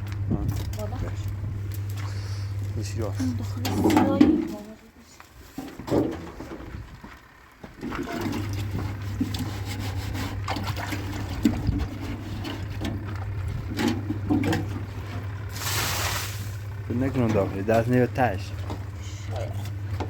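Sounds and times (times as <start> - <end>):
washing machine motor hum: 0.0 - 20.0
water churning and sloshing: 3.4 - 4.8, 7.5 - 20.0.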